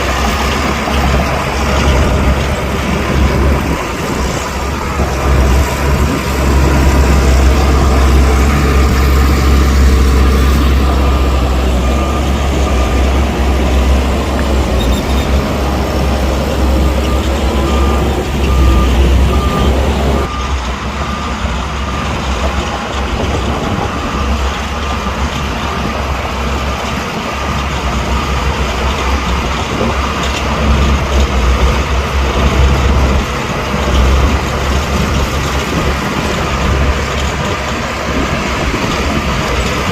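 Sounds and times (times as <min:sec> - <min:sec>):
heavy diesel engine: 0:00.0 - 0:39.9
backup alarm beeping: 0:03.1 - 0:24.5.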